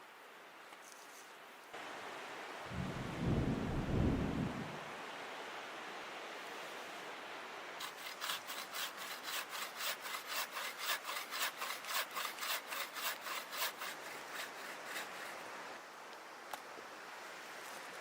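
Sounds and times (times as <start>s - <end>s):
hand saw cutting wood: 7.8s - 15.5s.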